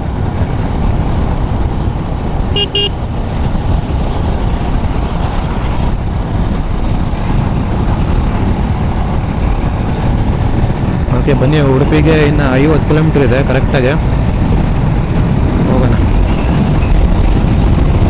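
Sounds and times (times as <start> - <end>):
low rumble of wind and engine: 0.0 - 18.0
vehicle horn toots: 2.5 - 3.0.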